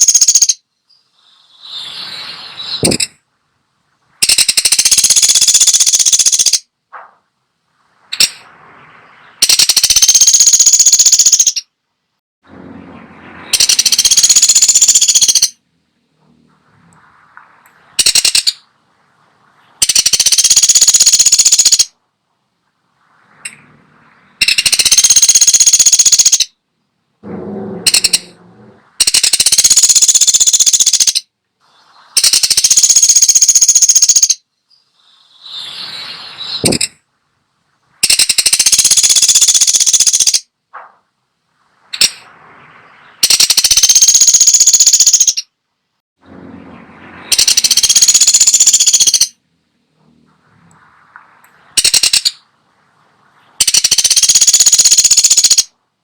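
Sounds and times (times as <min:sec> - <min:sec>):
woodpecker rattling bursts: 0:00.0 - 0:01.8, 0:02.7 - 0:03.3, 0:04.2 - 0:07.2, 0:07.9 - 0:11.8, 0:12.5 - 0:15.6, 0:16.4 - 0:22.0, 0:23.3 - 0:26.6, 0:27.2 - 0:31.3, 0:32.0 - 0:35.6, 0:36.5 - 0:37.0, 0:38.0 - 0:41.0, 0:41.6 - 0:45.6, 0:46.4 - 0:49.4, 0:50.8 - 0:52.6, 0:53.5 - 0:55.8.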